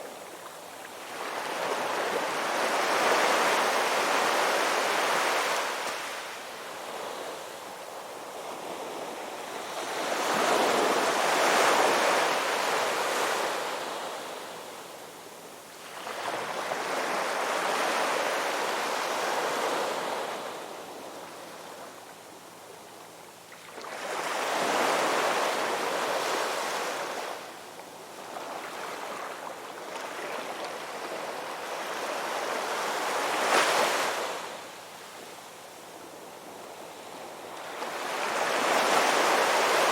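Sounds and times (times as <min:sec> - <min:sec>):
ocean waves breaking on shore: 0:36.8 - 0:39.9.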